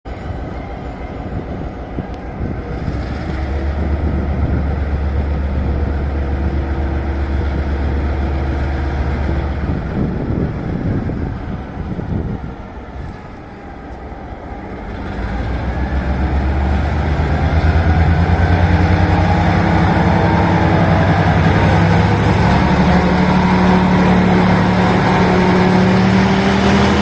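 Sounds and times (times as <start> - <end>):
diesel locomotive engine roaring: 0.0 - 27.0.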